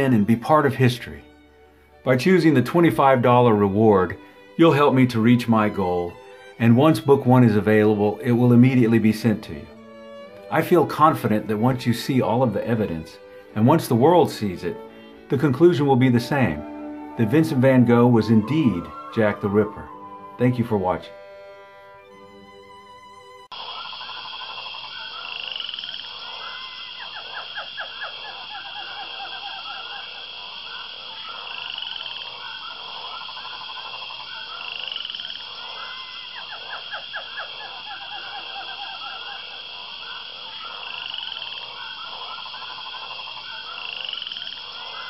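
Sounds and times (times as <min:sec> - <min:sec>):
frogs croaking in rattling trills: 0:12.2 - 0:15.3, 0:23.5 - 0:45.0.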